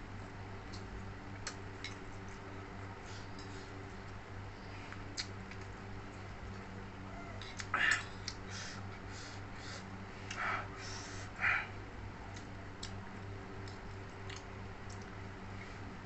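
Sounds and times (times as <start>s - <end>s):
steady low hum: 0.0s - 16.0s
wet chewing and smacking: 0.2s - 4.3s, 4.9s - 6.8s, 12.2s - 15.3s
small mouth clicks: 4.9s - 5.7s.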